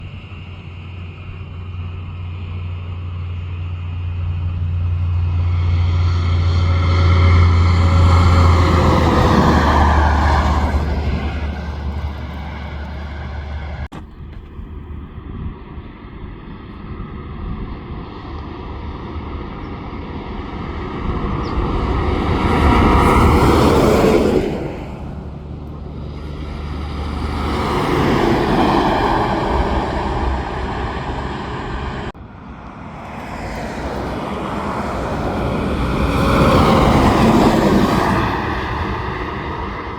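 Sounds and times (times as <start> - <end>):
heavy trucks driving past: 0.0 - 15.0, 18.5 - 39.9.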